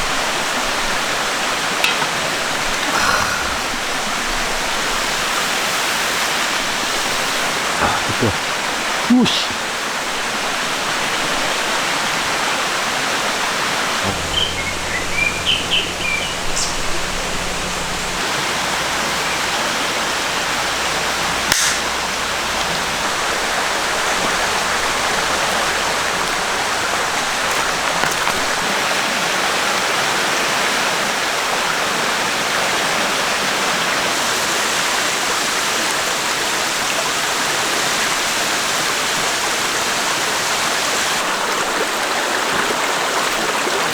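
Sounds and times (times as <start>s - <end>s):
stream flowing: 0.0s - 43.9s
low hum: 13.8s - 18.2s
single click: 21.5s - 21.9s.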